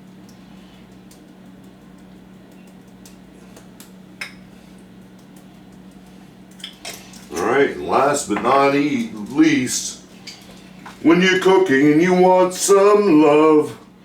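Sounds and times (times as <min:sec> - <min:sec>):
steady low hum: 0:00.0 - 0:14.0
light clicks and taps: 0:00.2 - 0:07.3.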